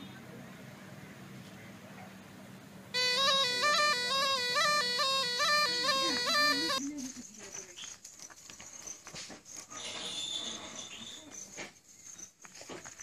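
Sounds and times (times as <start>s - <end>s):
reed pipe melody: 3.0s - 6.8s.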